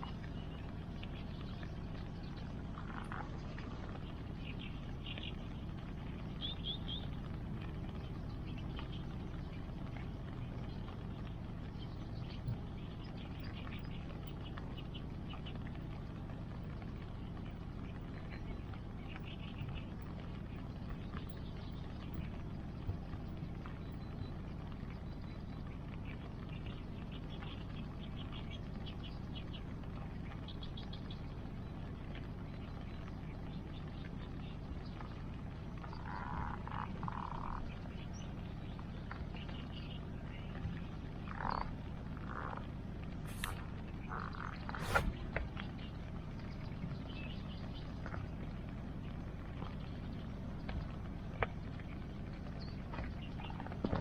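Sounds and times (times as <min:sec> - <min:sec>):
bonfire crackling: 0:00.0 - 0:54.0
rain: 0:00.0 - 0:54.0
short rasping calls: 0:43.3 - 0:45.2.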